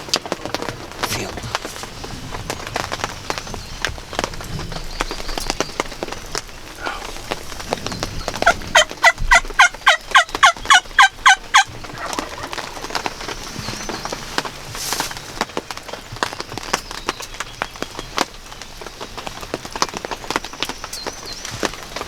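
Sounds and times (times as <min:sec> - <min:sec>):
turkey yelps: 0:06.7 - 0:07.4, 0:08.2 - 0:13.2.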